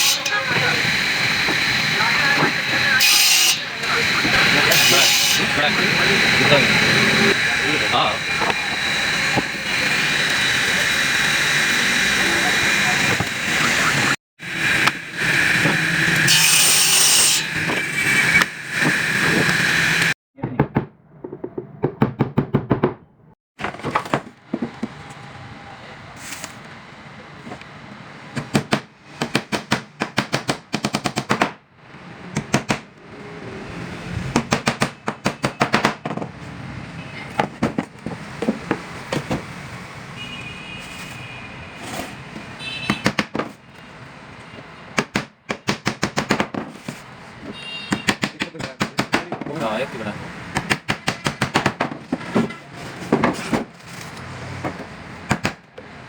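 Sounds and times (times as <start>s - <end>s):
noisy machine running: 0.0s - 20.2s
rapid sharp knocks on wooden box: 34.4s - 36.3s, 50.6s - 52.2s.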